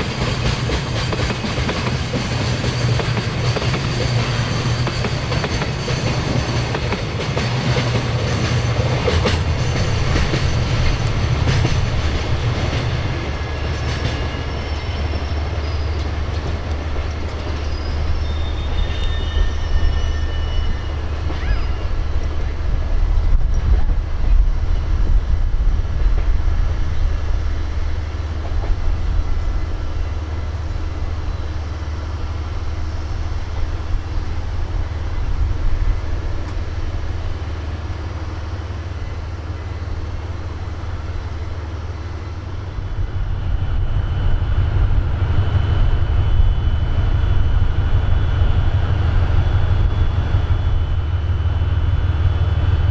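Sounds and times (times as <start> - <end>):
high wheel or brake squeals: 4.0 - 5.8, 14.2 - 16.5, 17.3 - 22.1
locomotive diesel engine drone: 21.0 - 52.9.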